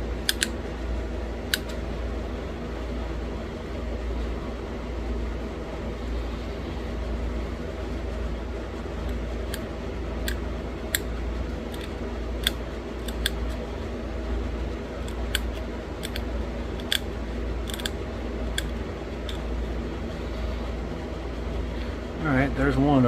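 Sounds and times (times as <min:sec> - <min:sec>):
steady low hum: 0:00.0 - 0:23.0
stone flaking clicks and snaps: 0:00.2 - 0:00.5, 0:11.7 - 0:13.6, 0:15.0 - 0:19.5.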